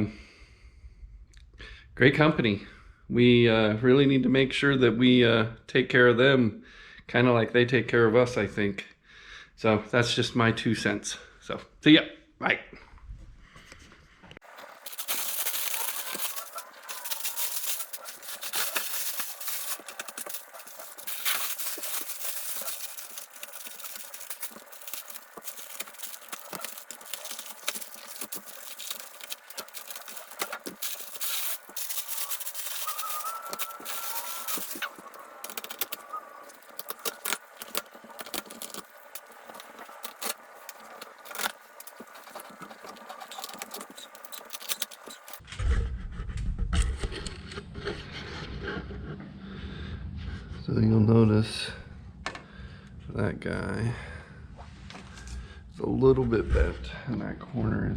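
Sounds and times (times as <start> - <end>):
cardboard box being handled: 14.4 - 45.4.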